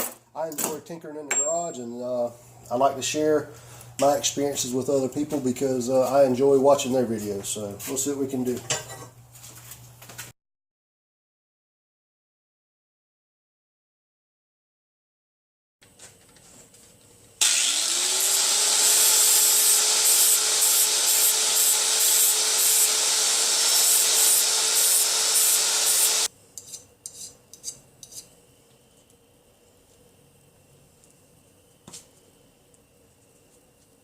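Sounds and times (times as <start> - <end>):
power tool motor whine: 17.4 - 26.3
grinding hiss on metal pipe: 18.8 - 28.4.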